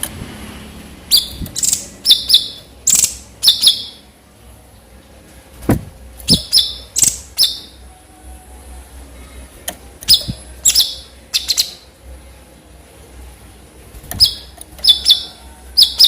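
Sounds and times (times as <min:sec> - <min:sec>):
bird calling in sharp high notes: 0:10.1 - 0:11.8.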